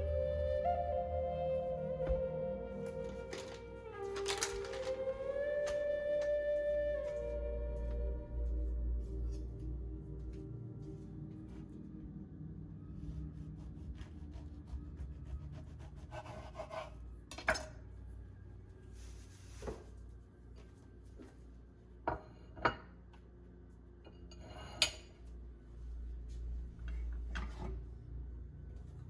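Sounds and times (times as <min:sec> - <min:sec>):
dishes and utensils clinking: 0:24.1 - 0:25.2.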